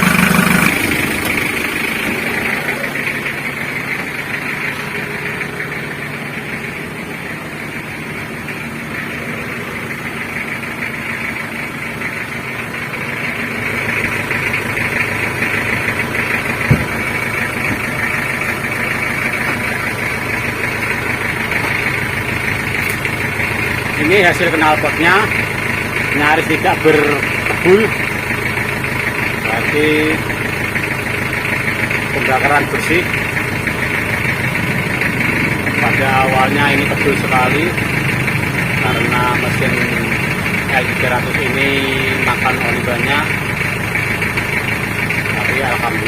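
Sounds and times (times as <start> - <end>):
diesel engine idling: 0.0 - 46.0
short thump: 16.7 - 17.0.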